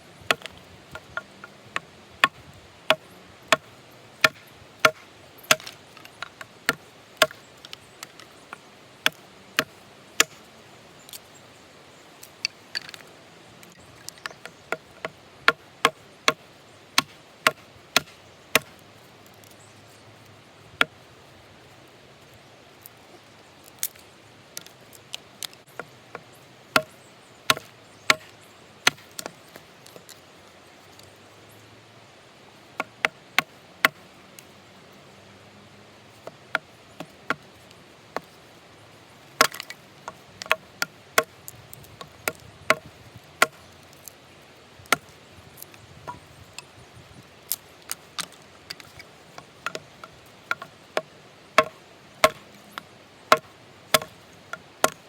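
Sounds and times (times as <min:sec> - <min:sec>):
hatchet chopping wood: 0:00.3 - 0:07.4, 0:09.0 - 0:10.4, 0:14.7 - 0:16.4, 0:17.0 - 0:18.8, 0:25.7 - 0:28.3, 0:28.9 - 0:29.4, 0:32.8 - 0:34.0, 0:39.4 - 0:43.7, 0:44.9 - 0:45.2, 0:47.9 - 0:52.5, 0:53.3 - 0:55.0.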